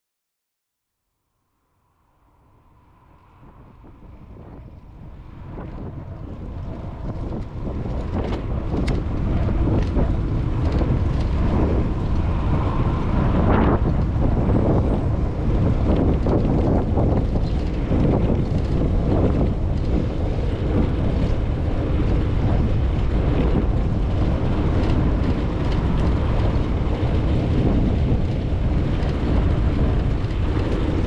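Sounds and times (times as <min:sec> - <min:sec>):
bicycle rumble: 0:02.4 - 0:31.0
wind buffeting microphone: 0:02.7 - 0:31.0
bicycle clicks and rattles: 0:07.0 - 0:13.2, 0:15.6 - 0:31.0.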